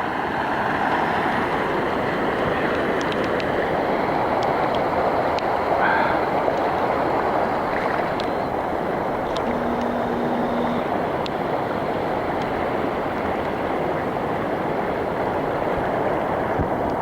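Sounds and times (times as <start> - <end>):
floodwater rushing: 0.1 - 17.0
faint ticks: 9.2 - 11.4.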